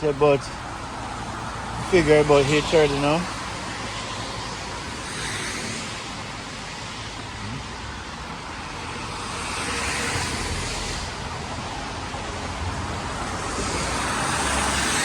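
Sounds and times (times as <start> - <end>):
car tyres hissing on wet road: 0.0 - 15.0.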